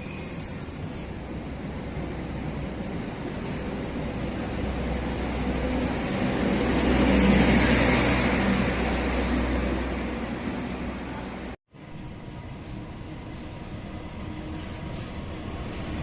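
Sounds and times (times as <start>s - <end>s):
train passing by: 0.0s - 16.0s.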